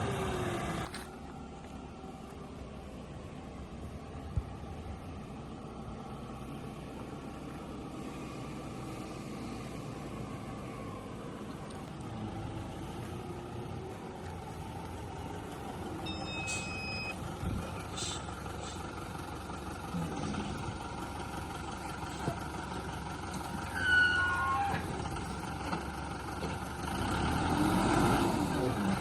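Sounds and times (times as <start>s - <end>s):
background rumble: 0.0s - 26.7s
brief high tone: 16.1s - 17.2s, 23.7s - 24.8s.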